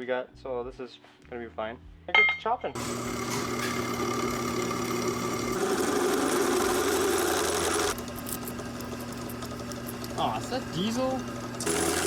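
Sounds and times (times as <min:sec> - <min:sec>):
power saw cutting steel: 0:02.8 - 0:12.0.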